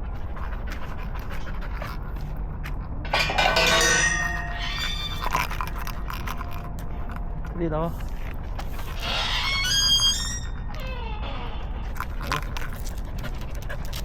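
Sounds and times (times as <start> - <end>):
street hum: 0.0 - 14.0
dog crying: 3.2 - 6.1.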